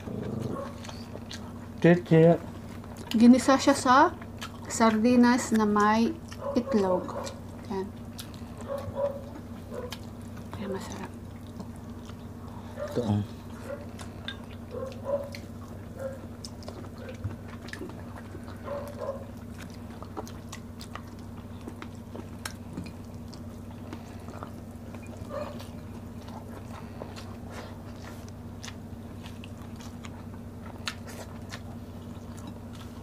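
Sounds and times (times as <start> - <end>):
people chewing with mouth clicks: 0.0 - 33.0
steady low hum: 0.0 - 33.0.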